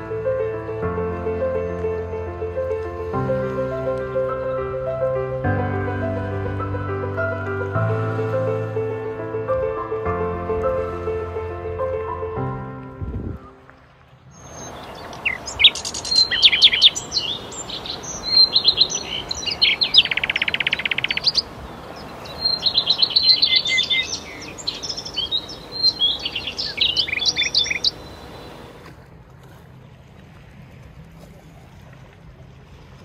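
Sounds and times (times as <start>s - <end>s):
songbird chirping: 14.3s - 28.9s
buzzy bird trill: 14.4s - 28.7s.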